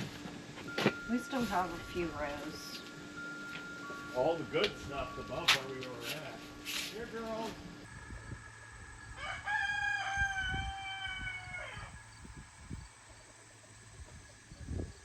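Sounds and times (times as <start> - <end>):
rooster crowing: 8.0 - 12.4.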